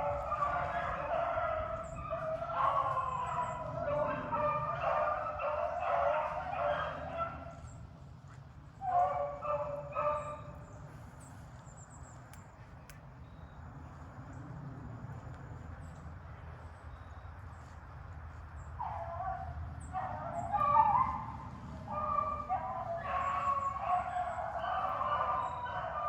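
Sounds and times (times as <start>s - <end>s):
hounds baying: 0.0s - 7.8s, 8.8s - 11.0s, 18.6s - 26.0s.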